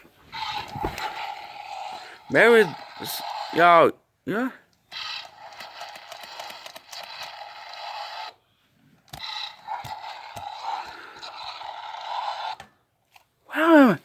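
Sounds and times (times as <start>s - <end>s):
toy speaker garbled crackly hiss: 0.4s - 3.8s.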